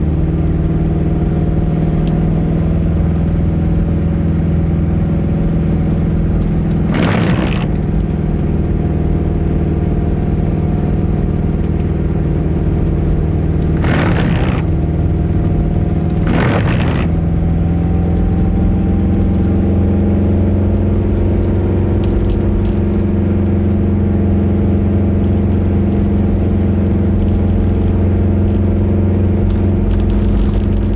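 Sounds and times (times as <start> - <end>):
car engine rumbling: 6.3 - 8.2, 13.0 - 17.7
rushing swishes: 13.8 - 15.1, 16.2 - 17.2.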